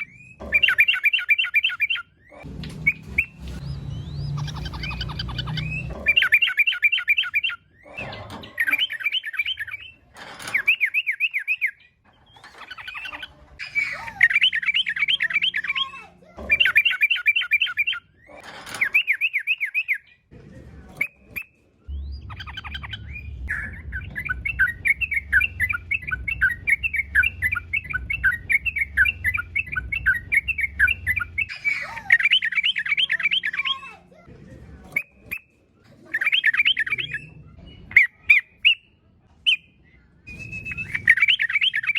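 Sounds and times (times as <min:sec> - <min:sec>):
bulbul singing chattering phrases: 0:00.0 - 0:09.9, 0:12.9 - 0:18.4, 0:21.9 - 0:34.2.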